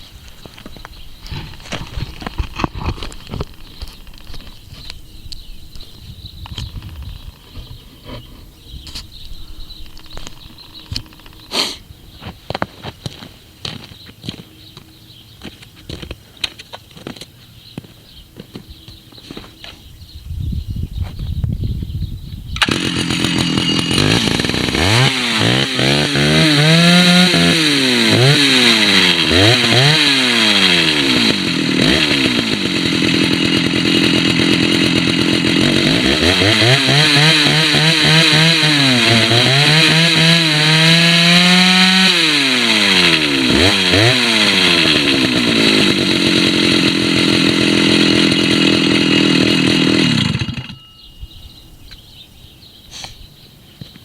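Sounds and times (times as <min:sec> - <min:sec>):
chainsaw revving and idling: 0:00.4 - 0:08.2, 0:09.1 - 0:11.8, 0:22.6 - 0:50.8.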